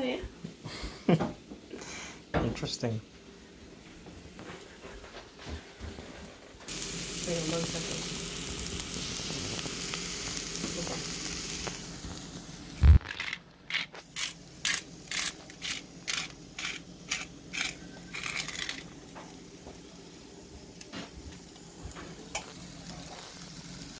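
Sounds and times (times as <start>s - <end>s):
vegetables sizzling in a pot: 6.7s - 23.9s.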